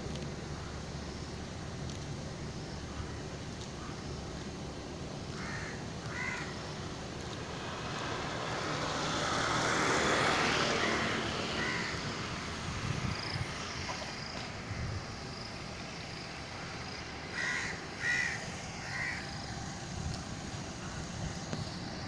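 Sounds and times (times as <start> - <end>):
vehicle passing by: 5.1 - 22.0
crows cawing: 5.3 - 6.8, 10.6 - 12.2, 17.2 - 19.7.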